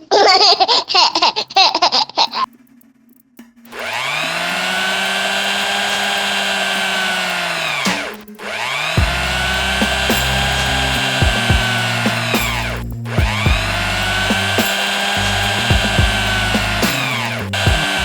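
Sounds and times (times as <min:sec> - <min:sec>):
small electric motor whirring: 0:03.7 - 0:18.0.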